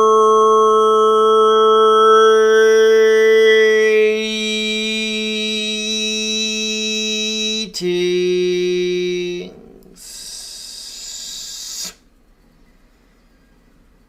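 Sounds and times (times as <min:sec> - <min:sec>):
breathy exhale: 0:10.0 - 0:12.1.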